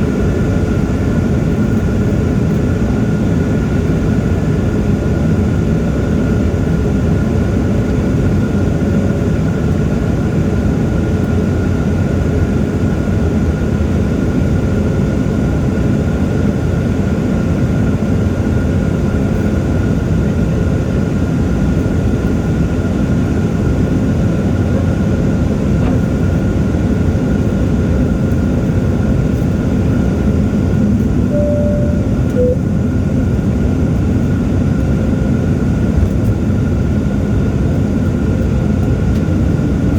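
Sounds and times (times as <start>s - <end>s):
low rumble of engines and airflow: 0.0s - 39.9s
thin high whine: 31.2s - 33.0s.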